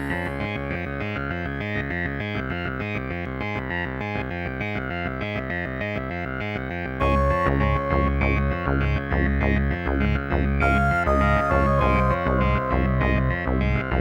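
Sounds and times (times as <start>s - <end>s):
fast synthesizer music with beat: 7.0s - 14.0s.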